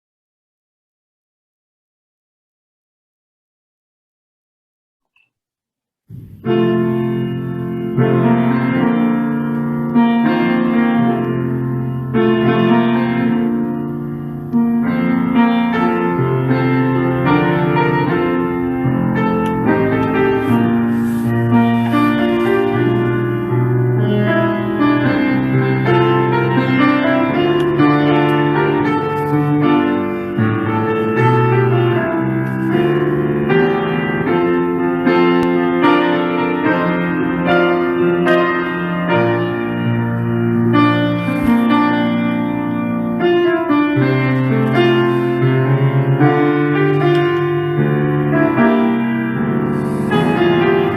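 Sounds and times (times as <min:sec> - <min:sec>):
slow piano piece in chords: 0:06.1 - 0:50.9.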